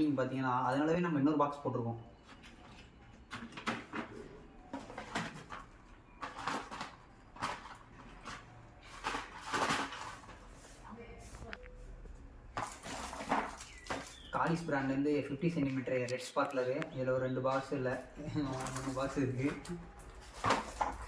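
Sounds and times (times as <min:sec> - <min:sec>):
cardboard boxes rustling and knocking: 0:12.5 - 0:14.3, 0:20.2 - 0:21.0.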